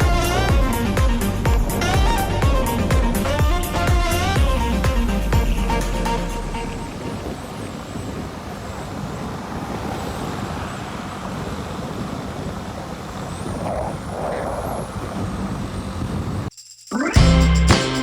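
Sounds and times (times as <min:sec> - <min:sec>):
motorcycle road noise: 0:00.0 - 0:16.5
rushing wind: 0:00.0 - 0:16.5.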